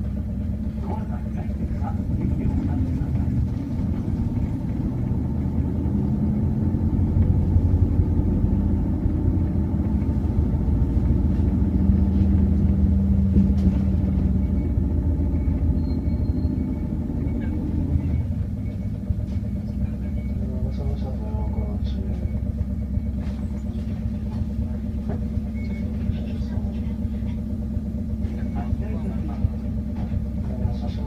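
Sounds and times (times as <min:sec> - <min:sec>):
bus engine low rumble: 0:00.0 - 0:31.0.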